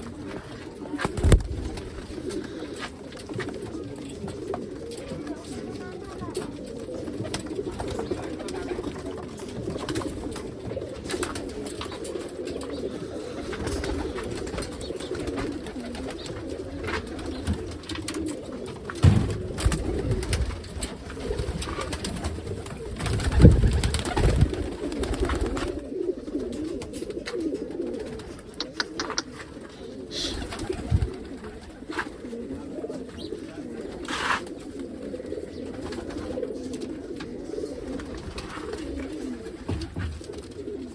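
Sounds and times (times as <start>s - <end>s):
pigeons cooing: 0.0s - 40.9s
low thumps: 19.0s - 20.2s.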